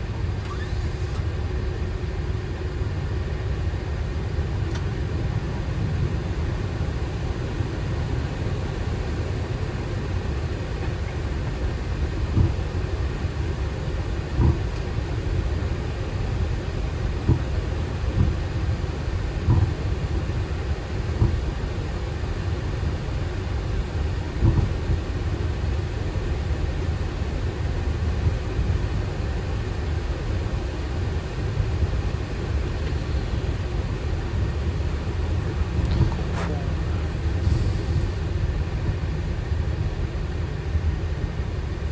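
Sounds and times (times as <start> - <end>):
aircraft engines idling rumble: 0.0 - 41.9
short thumps: 35.4 - 38.2.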